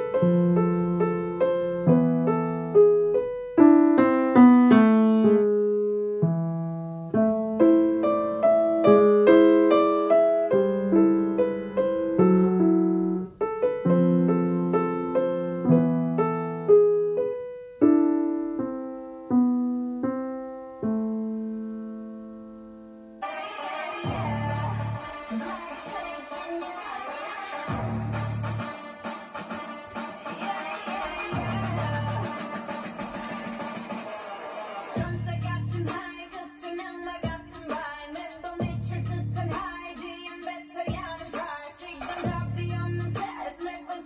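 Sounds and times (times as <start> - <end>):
solo piano melody: 0.0 - 23.2.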